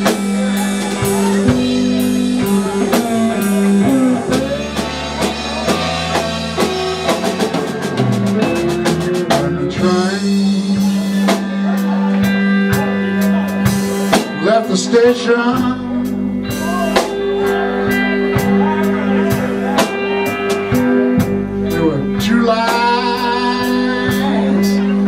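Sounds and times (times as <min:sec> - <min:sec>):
held bass note: 0:00.0 - 0:12.0
drum kit beat: 0:00.0 - 0:25.0
electric guitar: 0:00.0 - 0:25.0.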